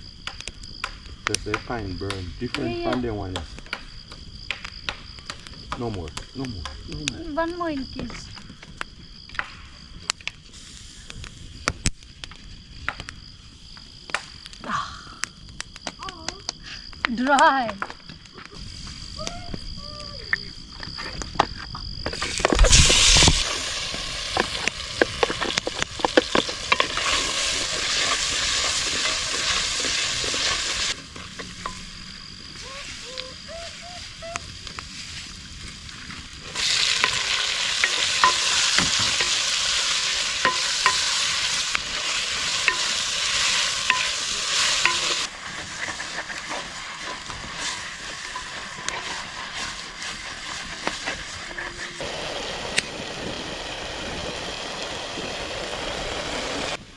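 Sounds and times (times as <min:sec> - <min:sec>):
food sizzling in hot oil: 0:10.5 - 0:11.7, 0:22.1 - 0:56.8
utensil scraping a pan: 0:24.3 - 0:31.8, 0:36.5 - 0:52.0.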